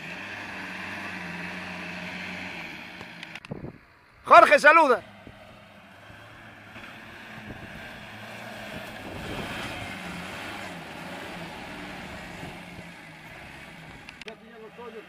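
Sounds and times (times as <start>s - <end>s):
engine working under load: 0.0s - 15.0s
wind noise on microphone: 3.4s - 3.9s, 7.2s - 8.0s, 8.6s - 10.0s.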